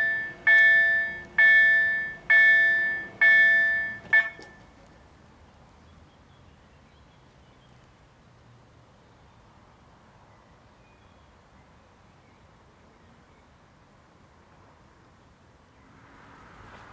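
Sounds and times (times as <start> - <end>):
level-crossing bell ringing: 0.0 - 4.6.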